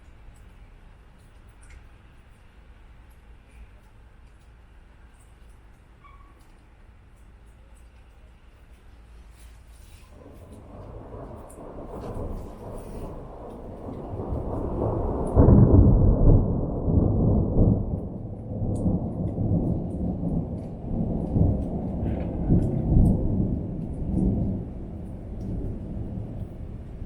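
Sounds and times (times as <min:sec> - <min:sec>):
rolling thunder: 0:10.1 - 0:27.0.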